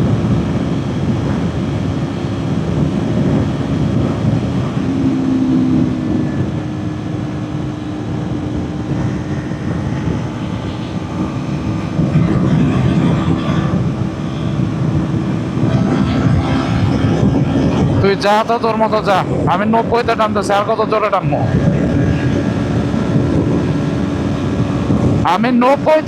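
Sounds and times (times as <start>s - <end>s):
motorcycle engine at high speed: 0.0s - 26.0s
wind rush on microphone: 0.0s - 26.0s.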